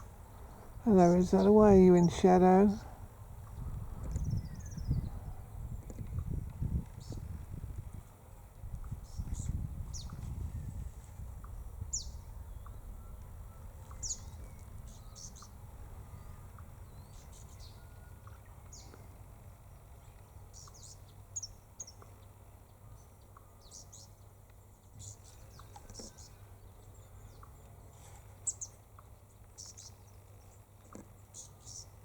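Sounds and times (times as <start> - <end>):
birds chirping: 0.0 - 5.6, 11.5 - 19.0.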